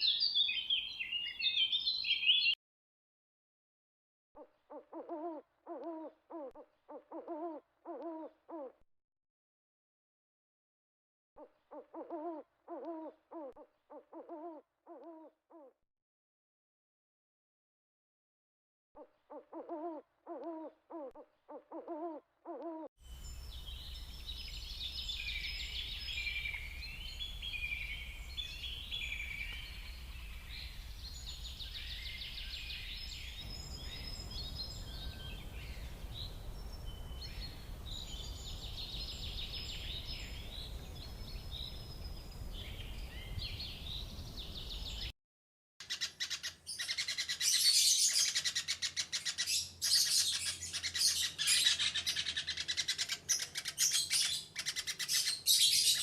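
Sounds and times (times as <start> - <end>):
songbirds warbling: 0.0 - 2.6, 19.2 - 45.1, 45.8 - 56.0
rapid bird chirping and chattering: 45.8 - 56.0.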